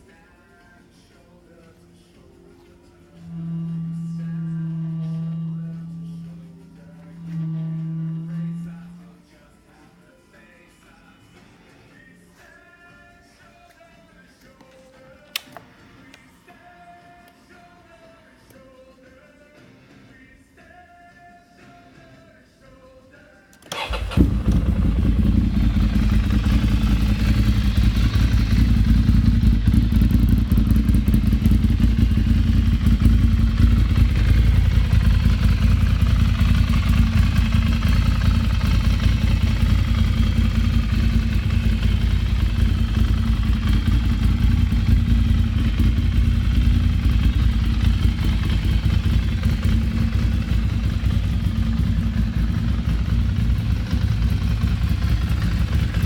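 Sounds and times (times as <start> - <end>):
motorcycle engine idling: 3.2 - 9.0, 23.7 - 56.0.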